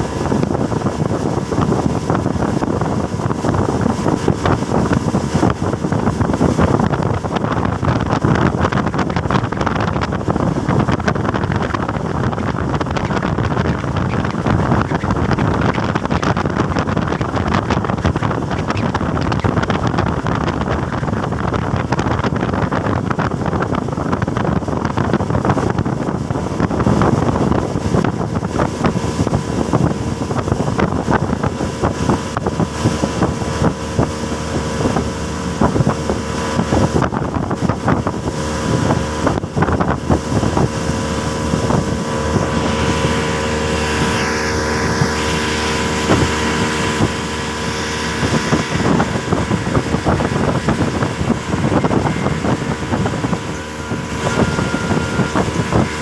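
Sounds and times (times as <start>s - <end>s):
rushing water: 0.0s - 56.0s
speedboat engine hum: 0.0s - 56.0s
wind buffeting microphone: 0.0s - 56.0s.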